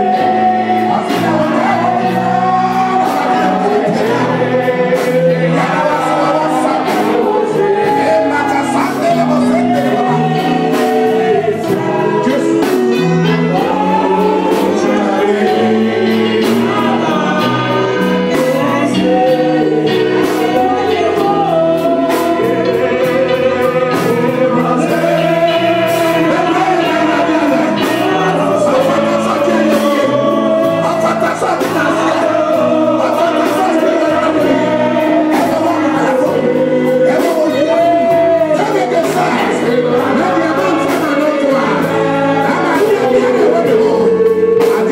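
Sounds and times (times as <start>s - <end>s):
gospel choir and congregation singing: 0.0s - 44.9s
instrumental backing with steady beat: 0.0s - 44.9s.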